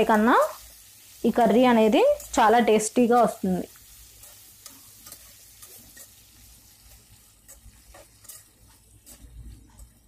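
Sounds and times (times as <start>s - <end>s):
vegetables sizzling in oil: 0.0s - 10.0s
metal spoon scraping pan: 4.0s - 10.0s.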